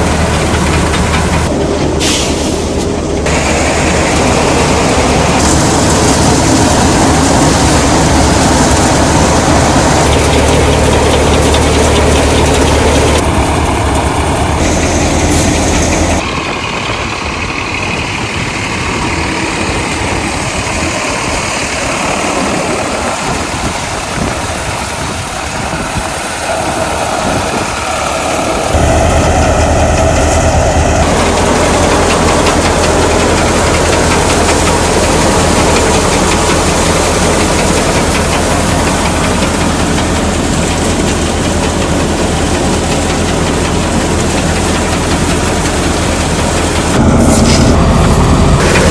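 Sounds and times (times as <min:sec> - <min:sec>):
tractor and thresher running: 0:00.0 - 0:48.9.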